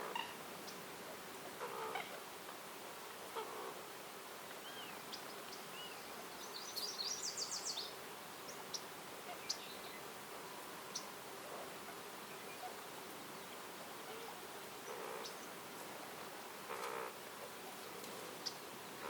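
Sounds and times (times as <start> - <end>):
woodland ambience hiss: 0.0 - 19.0
small songbirds calling: 4.5 - 19.0.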